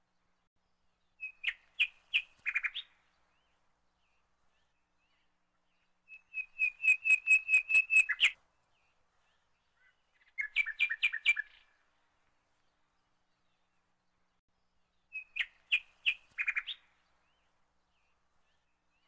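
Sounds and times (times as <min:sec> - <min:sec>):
small bird chirping: 0:01.2 - 0:03.6, 0:06.1 - 0:08.4, 0:09.2 - 0:11.8, 0:15.1 - 0:19.0.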